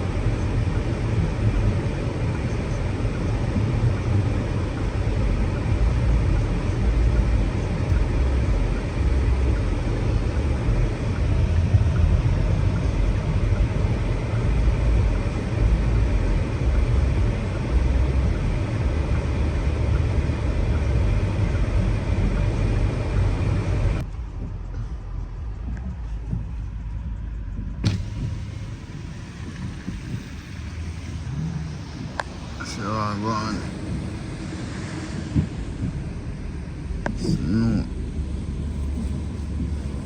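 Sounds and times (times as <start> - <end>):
road and engine rumble: 0.0 - 40.0
hiss: 27.8 - 37.8.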